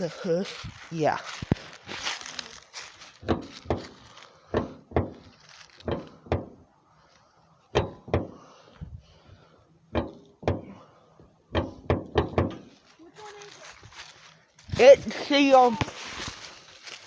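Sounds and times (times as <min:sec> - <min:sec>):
sharp metal thunks of car hood: 0:03.2 - 0:06.6, 0:07.7 - 0:08.5, 0:09.9 - 0:10.9, 0:11.5 - 0:12.7.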